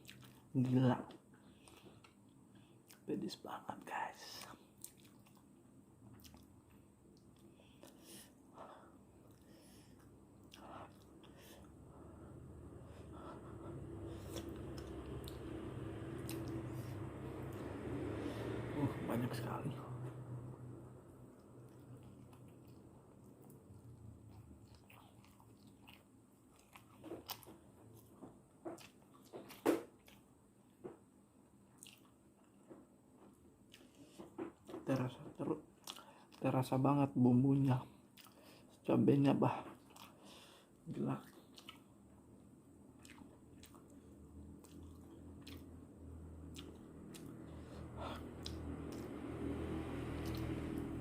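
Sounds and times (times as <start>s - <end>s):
chewing and lip-smacking: 0.0s - 0.5s, 1.5s - 3.1s, 4.2s - 8.0s, 9.2s - 11.7s, 13.2s - 17.9s, 21.2s - 30.3s, 31.7s - 36.7s, 37.9s - 38.8s, 39.7s - 42.0s, 42.9s - 51.0s
wet mouth clicks: 16.2s - 16.8s, 48.4s - 49.2s.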